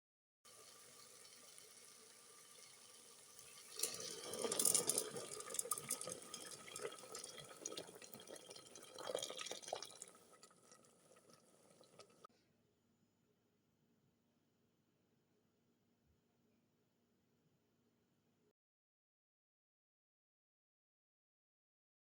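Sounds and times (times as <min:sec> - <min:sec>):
liquid pouring into pot: 0:00.5 - 0:12.3.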